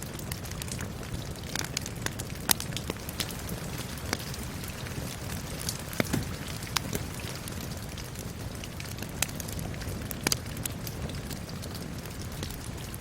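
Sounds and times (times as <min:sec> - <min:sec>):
steady rain hiss: 0:00.0 - 0:13.0
wood fire crackling and popping: 0:00.0 - 0:13.0.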